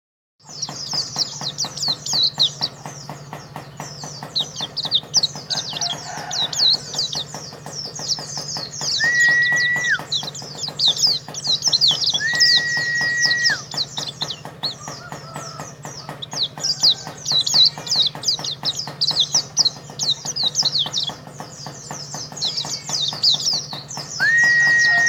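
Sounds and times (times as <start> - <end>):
bird twittering chirps: 0.4 - 25.0
held flat whistle: 9.0 - 10.0, 12.2 - 13.6, 24.2 - 25.0.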